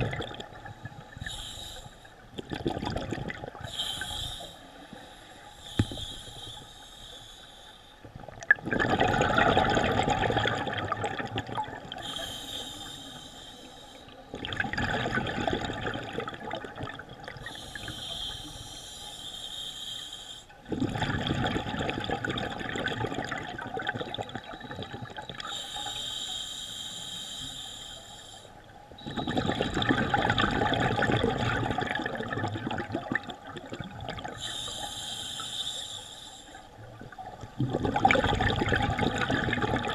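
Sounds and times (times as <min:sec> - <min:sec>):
exhaled bubbles gushing: 0:00.0 - 0:01.4, 0:02.4 - 0:03.8, 0:08.1 - 0:12.2, 0:14.3 - 0:17.9, 0:20.6 - 0:25.5, 0:29.0 - 0:34.4, 0:36.8 - 0:39.9
scuba regulator breathing: 0:00.6 - 0:02.3, 0:03.6 - 0:08.1, 0:11.9 - 0:14.3, 0:17.4 - 0:20.6, 0:25.4 - 0:29.8, 0:34.4 - 0:36.8.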